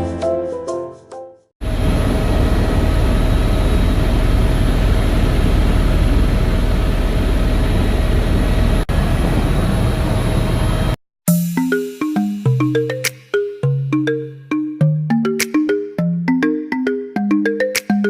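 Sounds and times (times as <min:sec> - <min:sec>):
helicopter engine and rotor: 0:01.7 - 0:11.0.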